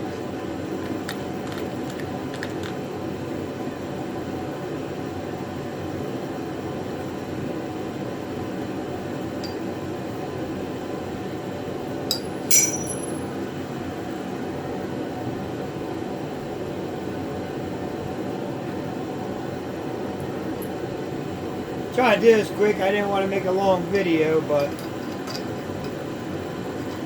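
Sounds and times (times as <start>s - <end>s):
steady low hum: 6.8s - 13.4s, 17.4s - 27.0s
steel parts clinking: 12.1s - 13.3s.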